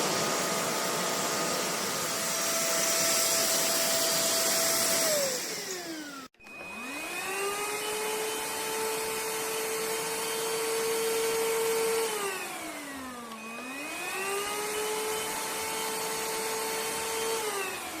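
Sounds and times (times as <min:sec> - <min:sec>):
vacuum motor whining: 0:00.0 - 0:18.0.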